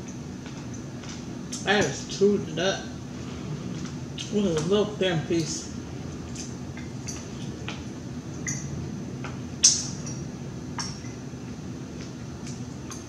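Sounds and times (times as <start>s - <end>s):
wet mouth clicks and smacks: 8.4s - 8.7s, 9.6s - 10.2s.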